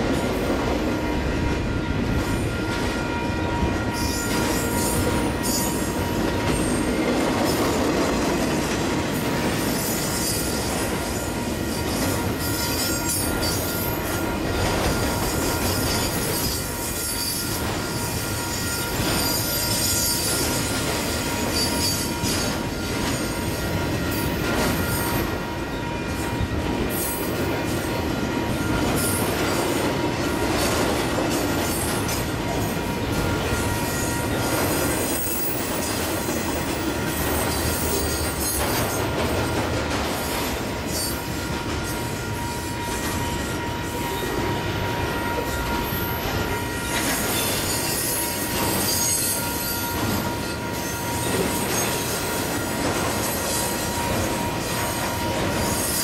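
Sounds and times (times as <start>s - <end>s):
freight train wheels rumbling: 0.0s - 56.0s
high ringing tone: 0.8s - 7.8s, 9.7s - 39.2s, 40.5s - 56.0s
wheel squeal: 45.4s - 52.7s.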